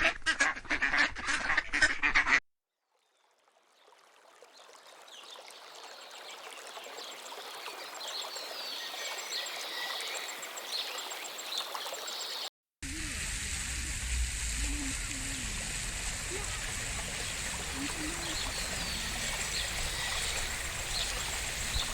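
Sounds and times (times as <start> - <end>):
steady rushing hiss: 12.8 - 21.9
small birds chirping: 14.7 - 21.9.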